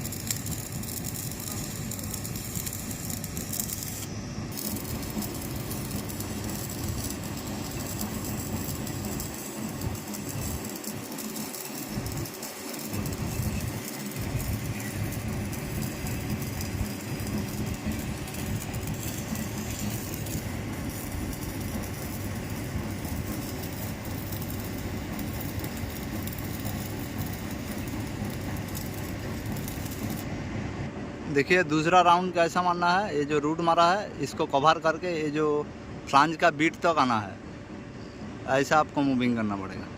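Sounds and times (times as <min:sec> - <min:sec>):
welding arc crackling: 0:00.0 - 0:30.3.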